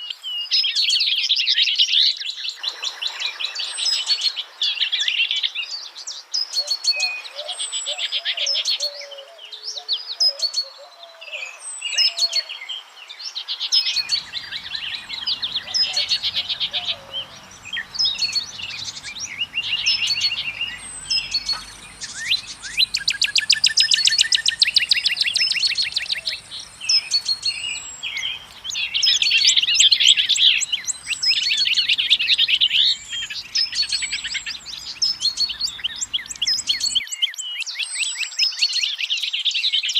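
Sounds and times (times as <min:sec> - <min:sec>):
songbirds chirping and singing: 0:00.0 - 0:39.9
fast bird trill: 0:14.0 - 0:37.0.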